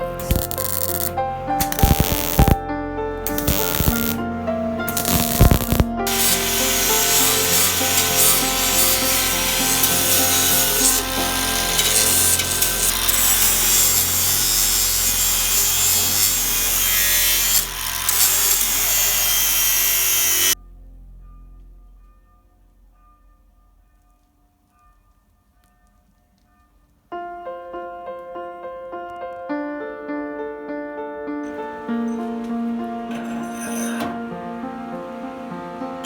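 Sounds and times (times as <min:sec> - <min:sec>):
tool scraping on metal: 0:00.0 - 0:02.6, 0:03.3 - 0:04.2, 0:04.8 - 0:20.6, 0:31.5 - 0:36.0
background music: 0:00.0 - 0:36.0.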